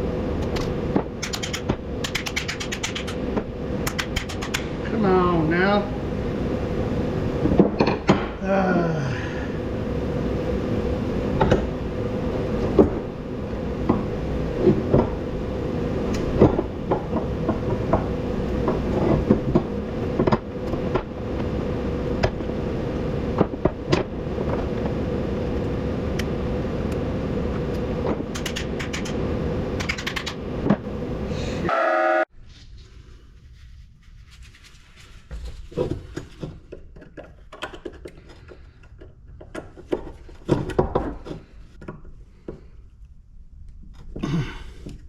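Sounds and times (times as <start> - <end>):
steady mechanical hum: 0.0 - 32.5.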